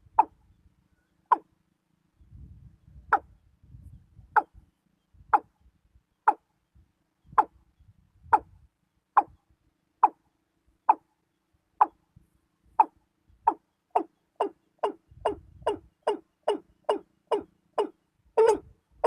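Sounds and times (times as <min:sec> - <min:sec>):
bird calling short notes: 0:12.8 - 0:18.7.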